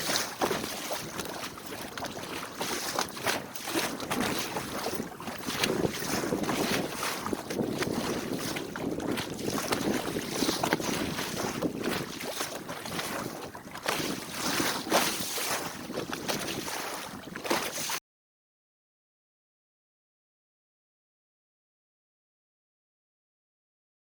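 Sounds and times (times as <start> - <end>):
water splashing along boat hull: 0.0 - 18.0
wind buffeting microphone: 0.6 - 17.4.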